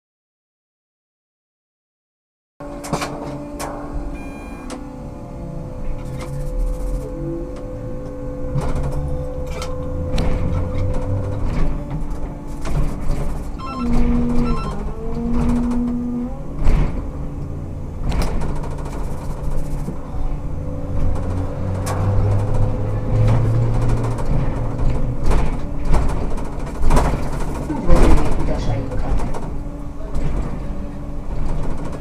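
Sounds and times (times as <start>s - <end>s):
trolleybus electric hum: 2.6s - 32.0s
short buzzing tones: 4.2s - 4.8s, 13.6s - 14.9s.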